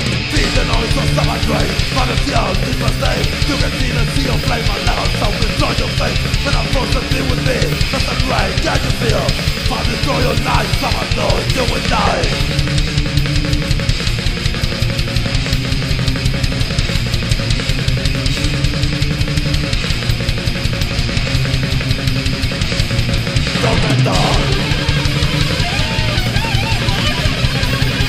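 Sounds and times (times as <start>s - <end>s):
bass guitar: 0.0s - 28.0s
distorted electric guitars: 0.0s - 28.0s
fast drum kit: 0.0s - 28.0s
wavering lead guitar line: 0.0s - 28.0s.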